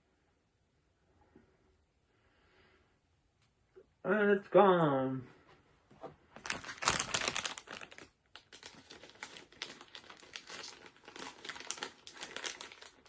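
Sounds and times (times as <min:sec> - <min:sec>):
plastic wrapper crinkling: 0:06.4 - 0:13.0.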